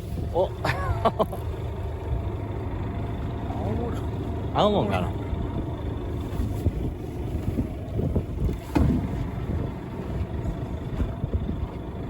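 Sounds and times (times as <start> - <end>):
boat engine rumble: 0.0 - 12.0
wind on microphone: 5.4 - 12.0.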